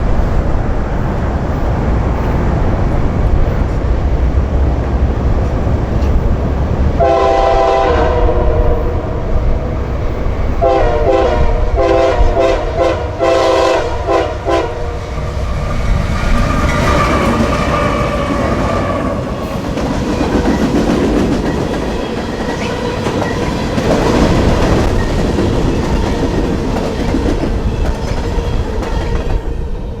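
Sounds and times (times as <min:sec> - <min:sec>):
train wheels clacking on rails: 0:00.0 - 0:07.1, 0:13.2 - 0:29.8
locomotive engines rumbling: 0:00.0 - 0:30.0
locomotive horn blasts: 0:07.0 - 0:09.0, 0:10.6 - 0:15.1.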